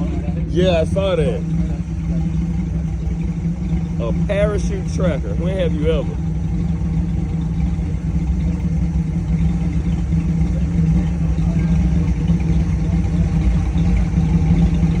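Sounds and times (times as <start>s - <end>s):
engine idling low-pitched: 0.0s - 15.0s.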